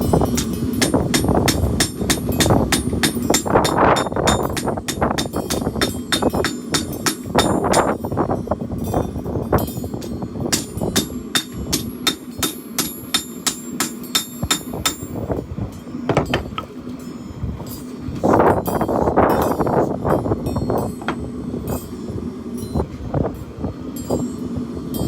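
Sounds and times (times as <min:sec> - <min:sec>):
hammer striking steel on anvil: 0:00.0 - 0:08.0, 0:09.7 - 0:15.2, 0:18.7 - 0:22.0.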